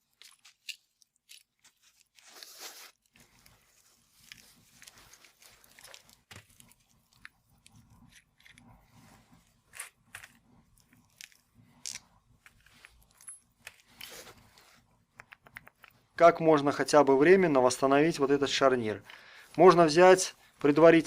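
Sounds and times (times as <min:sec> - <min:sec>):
hands clicking and scraping parts: 0:04.2 - 0:16.1.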